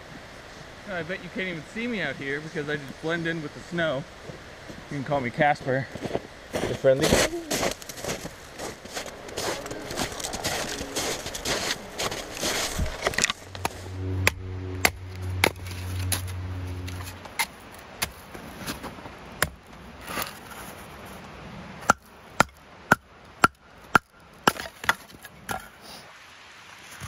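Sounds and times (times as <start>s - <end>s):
low steady hum: 7.0s - 19.7s
axe chopping firewood: 19.4s - 19.6s, 21.8s - 25.6s.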